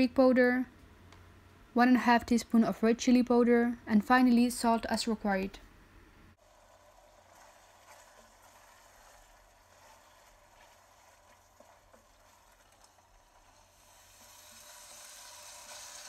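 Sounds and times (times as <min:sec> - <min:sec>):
faint sizzling in oil: 0:06.4 - 0:16.0
wooden spatula scraping pan: 0:07.0 - 0:16.0.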